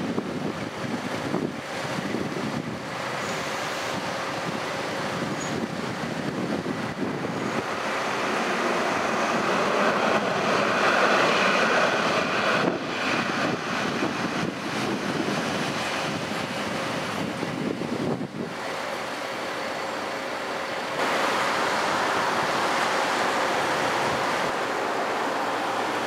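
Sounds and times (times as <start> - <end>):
wind on microphone: 0.0 - 18.9
train rushing past: 2.9 - 26.0.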